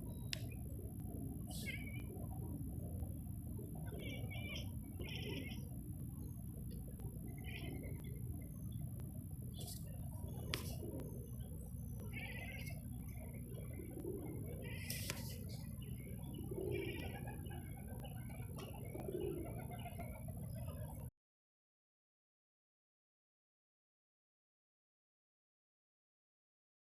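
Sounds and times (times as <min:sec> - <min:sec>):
dove cooing: 0:00.0 - 0:03.0, 0:03.6 - 0:05.8, 0:09.6 - 0:21.1
low background hum: 0:00.0 - 0:21.1
small birds chirping: 0:00.0 - 0:21.1.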